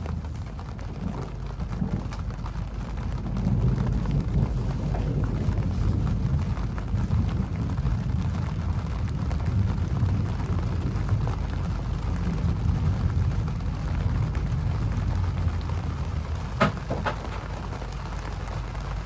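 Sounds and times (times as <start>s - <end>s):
low rumble: 0.0s - 19.0s
rain drop ticks: 0.0s - 19.0s
rain rushing: 0.0s - 19.0s.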